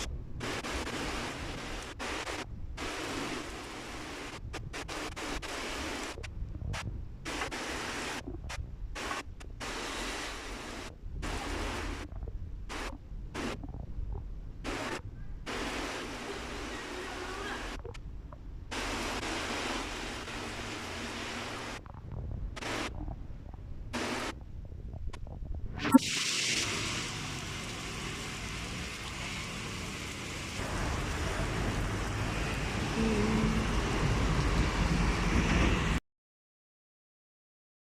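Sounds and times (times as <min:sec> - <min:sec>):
rain hissing: 0:00.0 - 0:13.9, 0:14.6 - 0:18.0, 0:18.7 - 0:36.0
low rumble: 0:06.1 - 0:07.5, 0:08.1 - 0:09.6, 0:10.8 - 0:15.5, 0:21.2 - 0:25.9.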